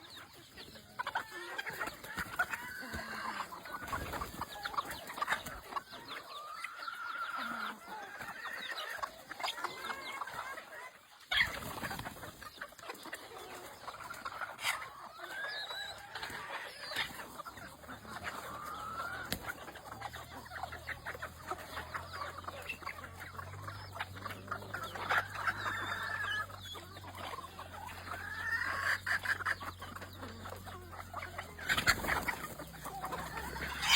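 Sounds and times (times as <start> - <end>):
chickens clucking: 0.0 - 33.9.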